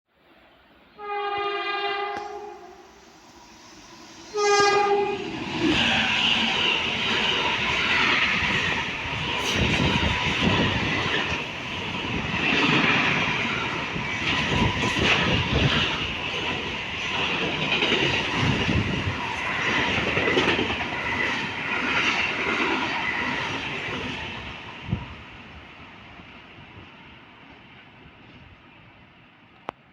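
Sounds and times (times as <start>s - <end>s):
freight train passing: 0.2s - 29.9s
train wheels knocking: 5.6s - 24.0s.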